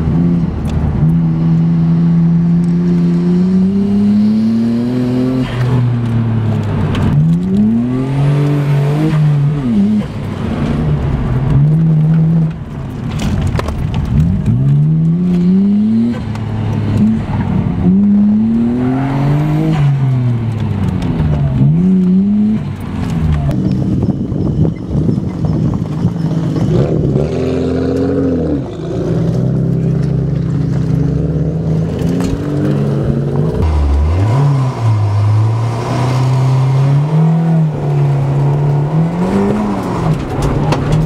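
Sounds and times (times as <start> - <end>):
car engine revving hard: 0.0 - 12.5, 14.4 - 22.8, 31.0 - 41.0.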